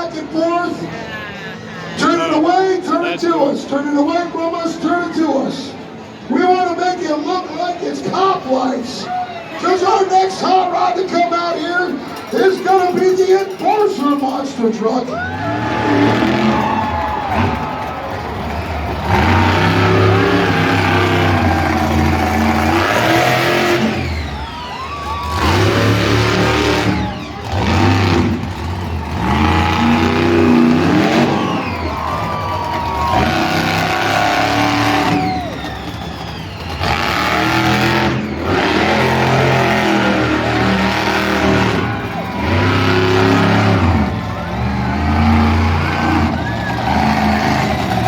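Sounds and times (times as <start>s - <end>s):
truck engine revving hard: 15.2s - 48.0s.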